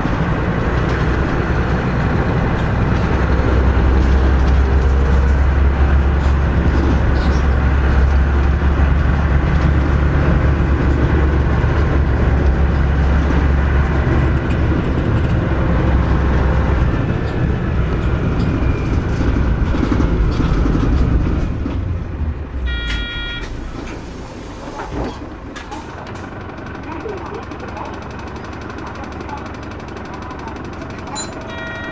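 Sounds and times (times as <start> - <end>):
bus engine droning: 0.0 - 31.9
short electronic chime: 22.7 - 23.6.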